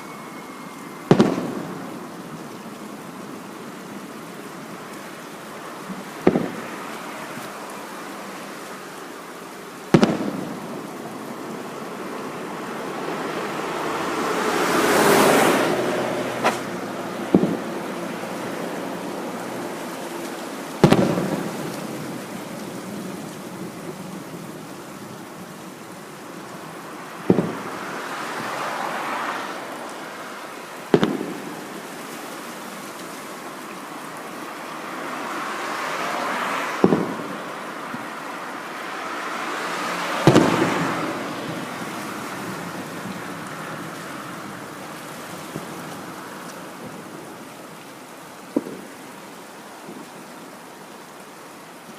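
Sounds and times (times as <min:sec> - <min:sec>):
hissing crackle of burning stars: 0:00.0 - 0:51.9
firework shells booming: 0:01.0 - 0:02.0, 0:06.2 - 0:06.7, 0:09.9 - 0:10.9, 0:16.4 - 0:17.9, 0:20.8 - 0:22.2, 0:27.2 - 0:27.9, 0:30.9 - 0:31.8, 0:36.8 - 0:37.5, 0:40.2 - 0:41.6, 0:48.5 - 0:48.9.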